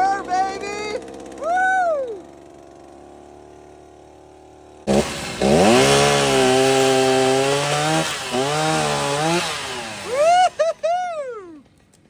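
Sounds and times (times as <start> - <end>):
vehicle engine revving hard: 4.8 - 10.6.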